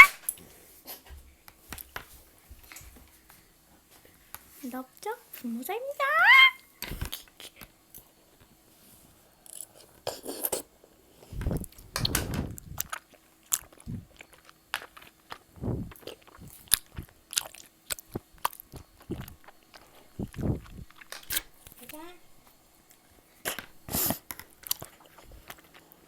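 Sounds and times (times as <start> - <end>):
wet chewing and smacking: 11.3 - 21.9, 22.8 - 26.0.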